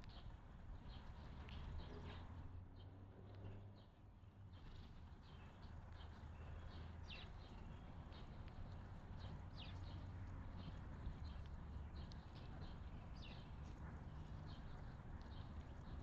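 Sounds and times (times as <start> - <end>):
small birds chirping: 4.5 - 16.0.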